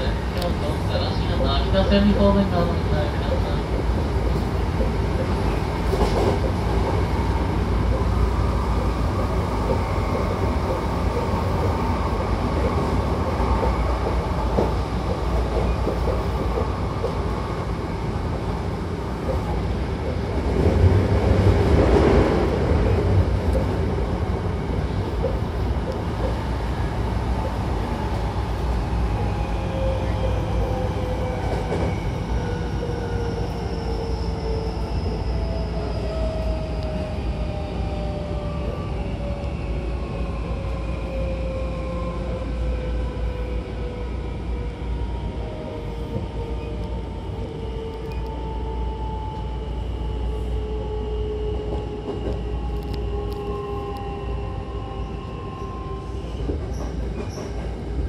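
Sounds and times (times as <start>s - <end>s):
train wheels rumbling on track: 0.0s - 58.0s.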